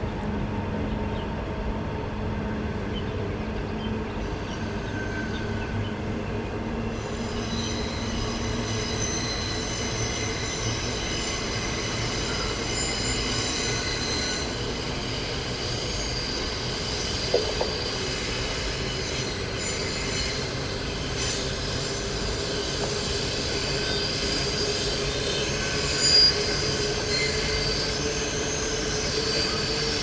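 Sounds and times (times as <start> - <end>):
train rolling rumble: 0.0 - 30.0
high-pitched wheel squeal: 6.8 - 30.0.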